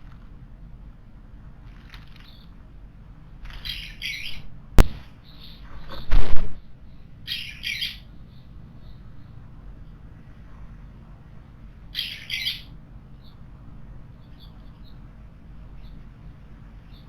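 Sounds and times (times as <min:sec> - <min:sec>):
birds calling harshly: 0:01.7 - 0:02.6, 0:03.3 - 0:10.1, 0:11.7 - 0:17.0.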